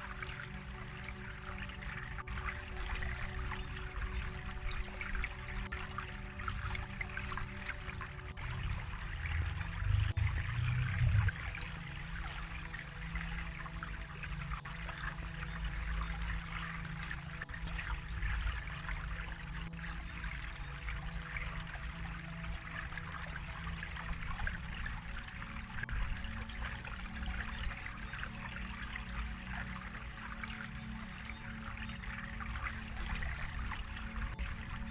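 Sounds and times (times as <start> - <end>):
water trickling and splashing: 0.0 - 34.9
low hum: 2.3 - 20.7.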